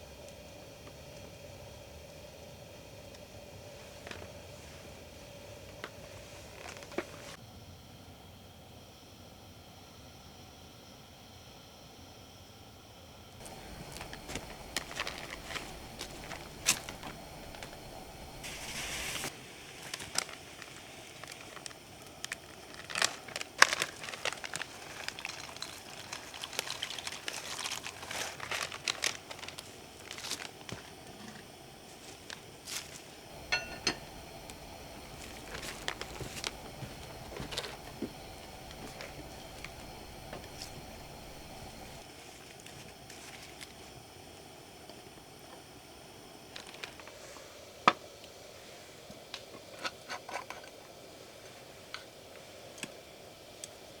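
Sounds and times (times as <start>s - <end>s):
wood fire crackling: 0.0s - 7.4s, 13.4s - 44.4s
brief hiss: 13.5s - 20.1s.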